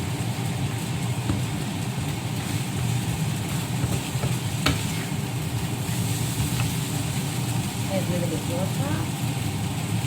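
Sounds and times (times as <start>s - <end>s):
vegetables sizzling in a frying pan: 0.0s - 10.0s
utensil knocking on pan: 1.2s - 1.7s, 2.7s - 5.1s.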